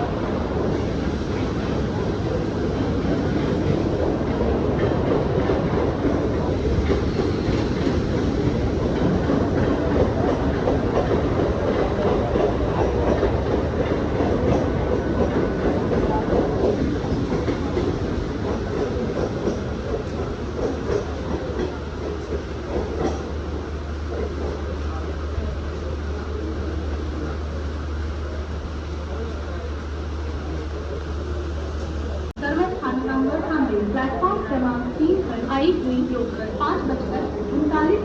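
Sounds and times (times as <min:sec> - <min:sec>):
electric train rumbling: 0:00.0 - 0:38.0
wheel clatter over rail joints: 0:00.6 - 0:25.1.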